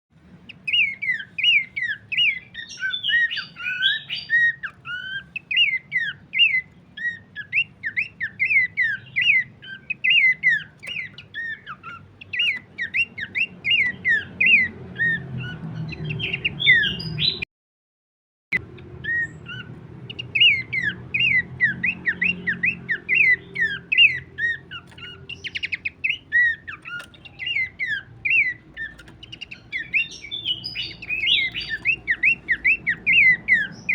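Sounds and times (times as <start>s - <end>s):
bird whistled chirps: 0.5s - 17.4s, 19.0s - 33.9s.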